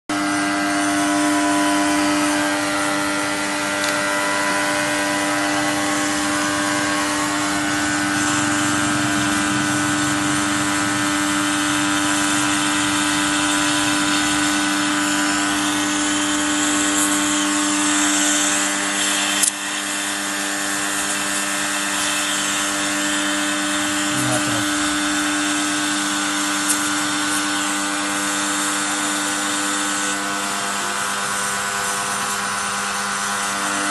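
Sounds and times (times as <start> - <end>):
machine hum with hiss: 0.1 - 33.9
sharp click: 19.4 - 19.6.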